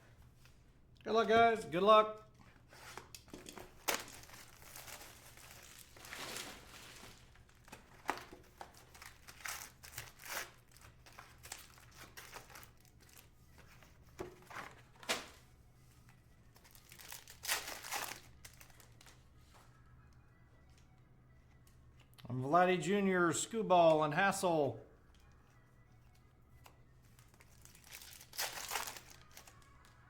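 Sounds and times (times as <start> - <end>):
foil wrappers crinkling and tearing: 2.6 - 13.8, 16.5 - 19.2, 26.6 - 30.0.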